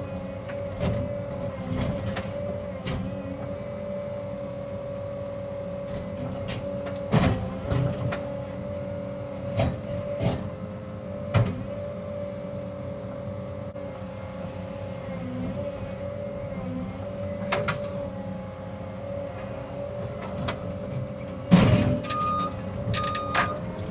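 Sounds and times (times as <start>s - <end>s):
excavator engine whine: 0.0s - 23.9s.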